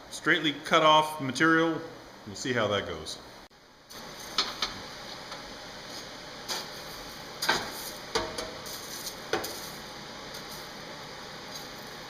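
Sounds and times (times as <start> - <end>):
steady hiss: 3.8 - 12.0.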